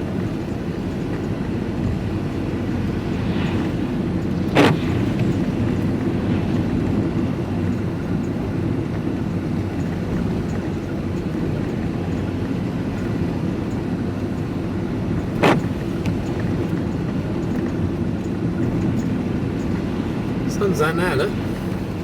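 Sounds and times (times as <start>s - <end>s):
road and engine noise inside vehicle: 0.0s - 22.0s.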